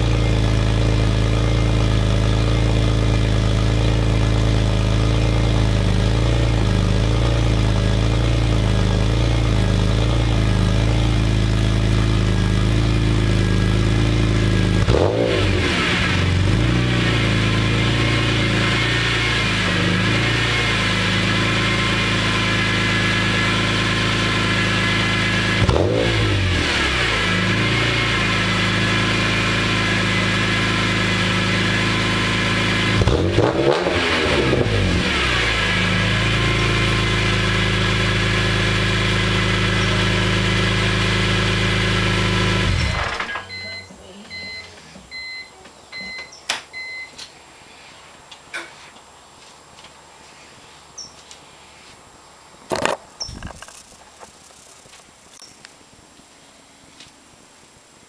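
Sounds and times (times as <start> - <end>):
car engine idling: 0.0 - 45.4
engine throttle blips: 0.0 - 47.2
faint on-off beeping: 42.9 - 47.2.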